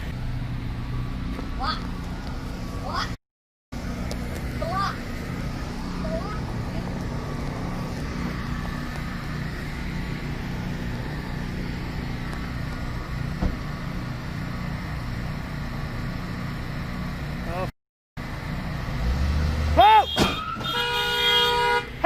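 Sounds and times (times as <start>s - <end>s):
car road and engine rumble: 0.0s - 22.0s.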